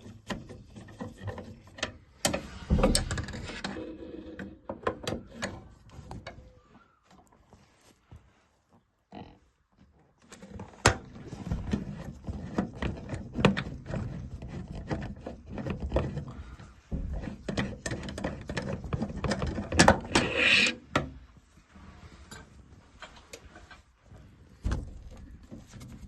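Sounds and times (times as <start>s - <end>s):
metal scraping: 19.4s - 20.9s.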